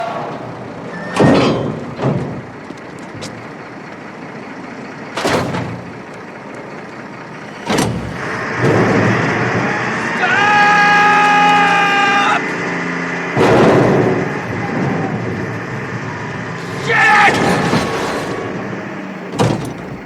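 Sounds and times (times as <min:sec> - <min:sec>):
garbage truck running: 0:00.0 - 0:20.0
hissing clanking bursts: 0:07.4 - 0:10.0, 0:16.5 - 0:20.0.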